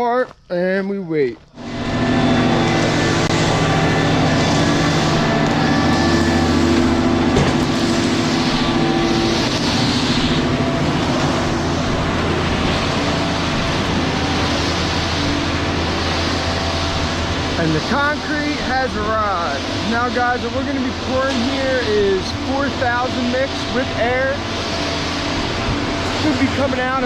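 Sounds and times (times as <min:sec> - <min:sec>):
diesel engine running: 0:01.4 - 0:27.0.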